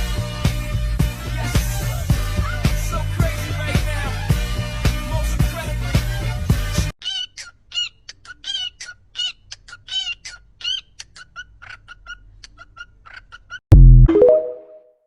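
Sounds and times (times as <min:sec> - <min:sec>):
background music: 0:00.0 - 0:06.9, 0:14.1 - 0:14.9.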